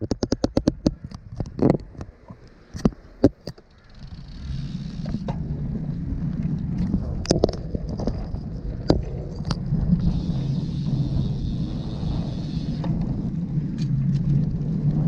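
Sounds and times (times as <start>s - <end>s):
bicycle handling clicks: 0.0s - 5.5s, 8.8s - 14.6s
tyres and wind rumbling: 0.0s - 15.0s.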